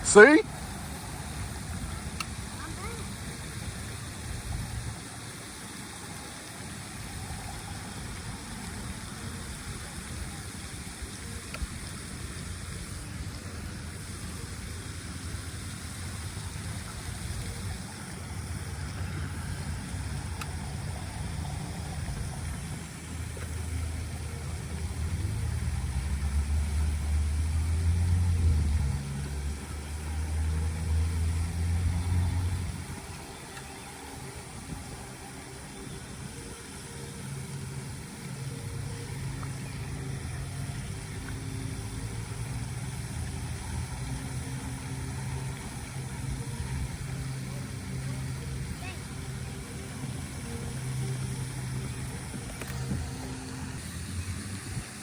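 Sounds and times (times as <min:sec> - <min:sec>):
road rumble: 0:00.0 - 0:55.0
car engine from inside: 0:16.8 - 0:34.8.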